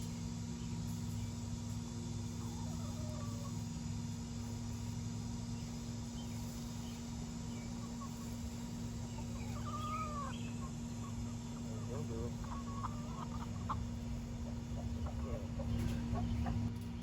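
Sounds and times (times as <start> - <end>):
steady low hum: 0.0 - 17.0
hens clucking: 2.2 - 3.8, 6.5 - 16.8.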